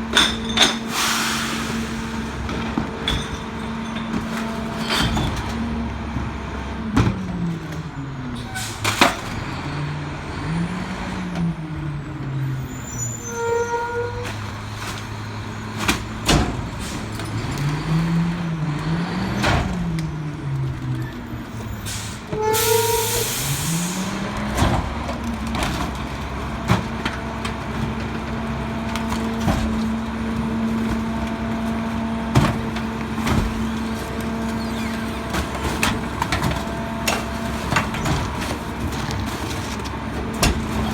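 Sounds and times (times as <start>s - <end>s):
trash being compacted: 0.0s - 40.9s
air hiss: 0.9s - 2.2s
diesel engine revving: 4.5s - 13.0s, 14.3s - 40.9s
hydraulic squeals: 12.6s - 14.4s, 21.0s - 24.1s, 33.6s - 35.4s.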